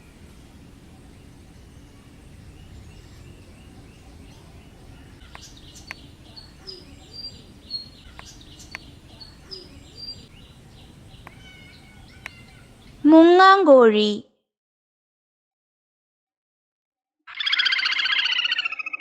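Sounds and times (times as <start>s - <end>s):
steady background hiss: 0.0s - 13.7s
sharp clicks: 5.3s - 6.0s, 8.1s - 8.9s, 12.2s - 12.4s.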